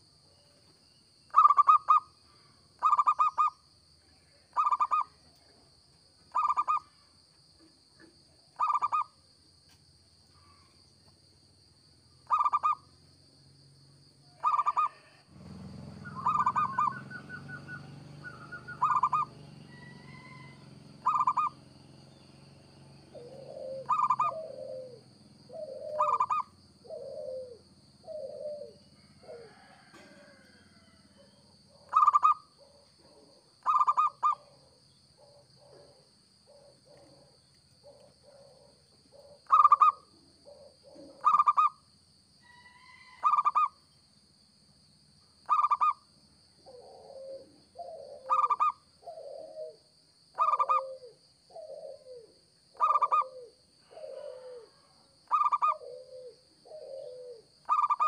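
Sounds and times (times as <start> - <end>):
dove cooing: 1.3 - 2.1, 2.8 - 3.6, 4.5 - 5.4, 6.3 - 6.9, 8.6 - 9.1, 12.3 - 12.8, 14.4 - 41.8, 42.4 - 43.8, 45.5 - 46.0, 46.6 - 58.0.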